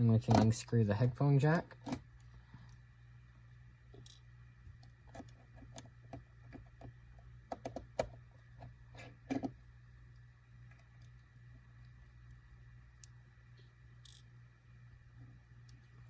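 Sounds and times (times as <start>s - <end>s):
screwdriver clicking on small screws: 14.0s - 14.3s.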